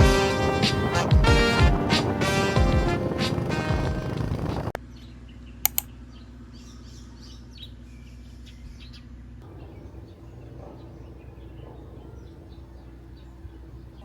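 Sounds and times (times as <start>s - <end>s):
steady low hum: 0.0s - 4.8s, 9.3s - 14.0s
birds chirping: 0.0s - 14.0s.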